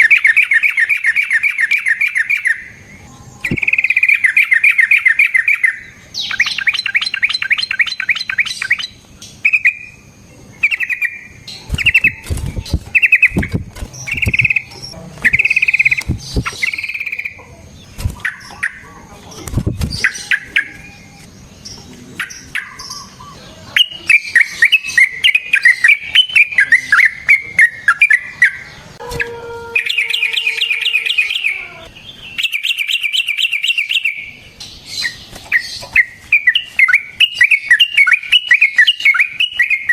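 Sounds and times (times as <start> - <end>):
bird trilling song: 0.0 - 39.9
low thumps: 11.7 - 17.0.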